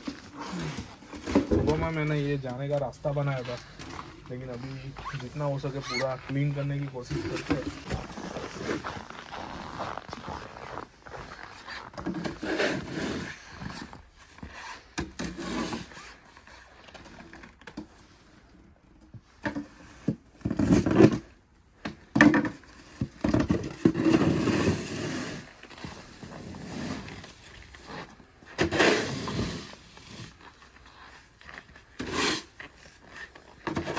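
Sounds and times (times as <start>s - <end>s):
snow shovel scraping snow: 3.1s - 13.9s, 24.0s - 25.5s, 28.6s - 30.2s.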